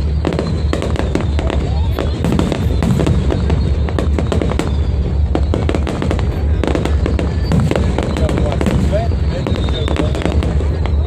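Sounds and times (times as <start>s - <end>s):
fireworks popping and banging: 0.0s - 11.0s.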